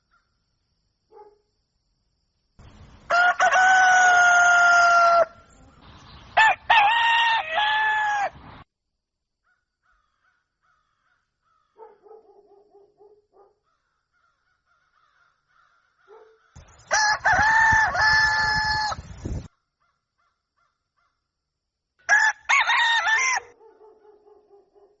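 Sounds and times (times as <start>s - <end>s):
rooster crowing: 2.7s - 5.5s, 6.4s - 8.4s, 16.6s - 19.4s, 22.1s - 23.6s.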